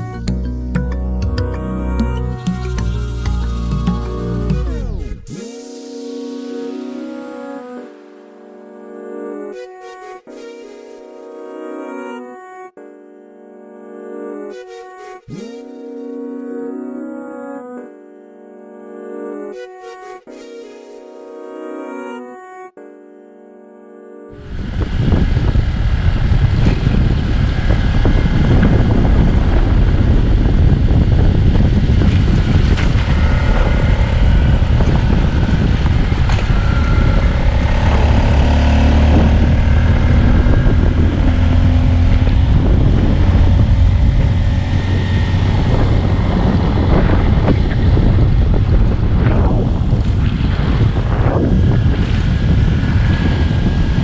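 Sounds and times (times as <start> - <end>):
engine rumbling: 24.4 - 54.0
wind buffeting microphone: 24.4 - 54.0.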